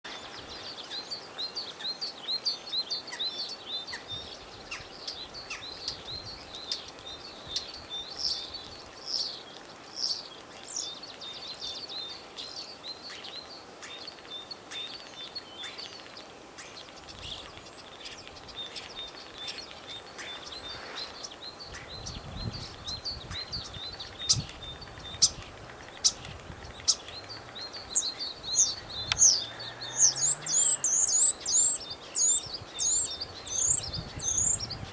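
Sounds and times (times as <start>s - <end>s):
starlings singing: 0.2s - 34.9s
sharp bird clicks: 29.0s - 29.4s.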